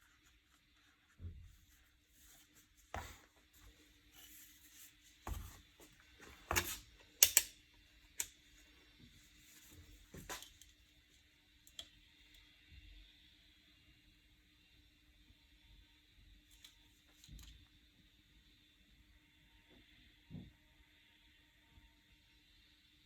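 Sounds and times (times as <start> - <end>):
vacuum cleaner parts clicking: 6.4 - 7.5.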